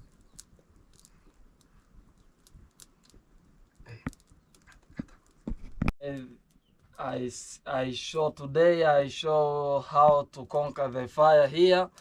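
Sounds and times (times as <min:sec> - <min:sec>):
sharp pops from fire: 0:00.0 - 0:07.2, 0:11.7 - 0:12.0
wood fire crackling: 0:00.0 - 0:12.0.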